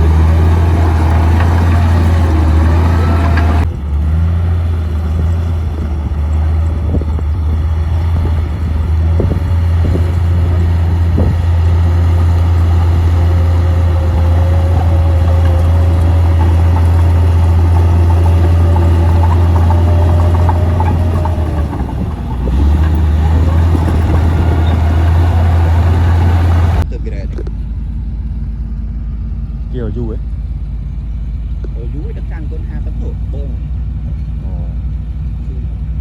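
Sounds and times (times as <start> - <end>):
bulldozer diesel engine droning: 0.0 - 36.0
short knocks: 9.2 - 26.8.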